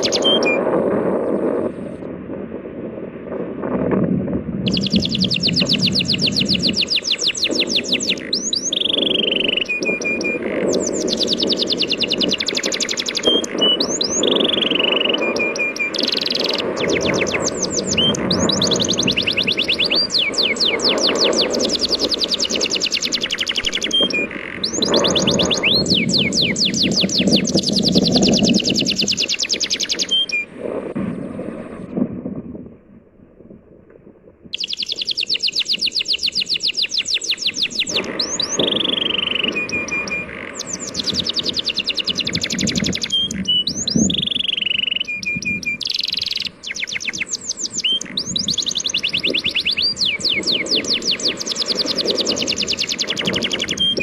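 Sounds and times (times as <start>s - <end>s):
birds chirping in trills: 0.0s - 0.7s, 4.7s - 30.5s, 34.5s - 54.0s
sea waves rushing: 4.7s - 32.0s.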